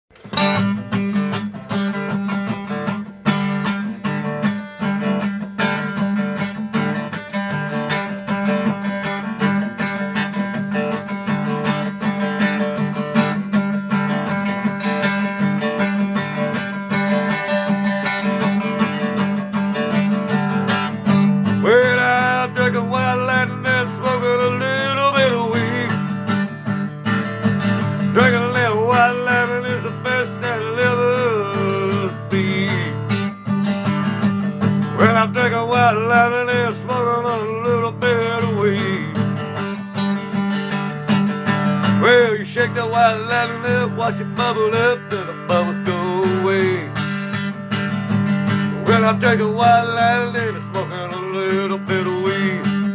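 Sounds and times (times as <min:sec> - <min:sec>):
acoustic guitar strumming: 0:00.1 - 0:52.9.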